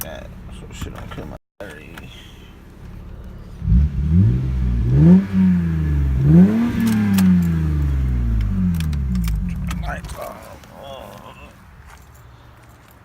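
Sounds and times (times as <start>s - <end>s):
car engine revving: 1.9s - 10.6s.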